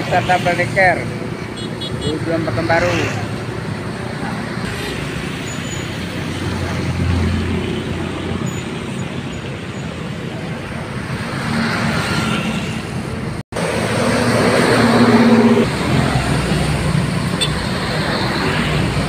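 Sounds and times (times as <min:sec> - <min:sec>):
tyre and road noise: 0:00.0 - 0:19.0
bus engine passing: 0:02.9 - 0:19.0.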